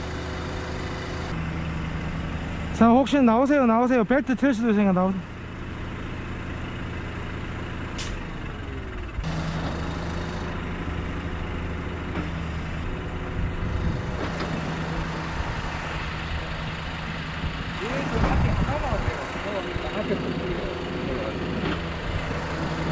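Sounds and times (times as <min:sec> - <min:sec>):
truck diesel engine running: 0:00.0 - 0:22.9
sharp click: 0:08.0 - 0:08.2.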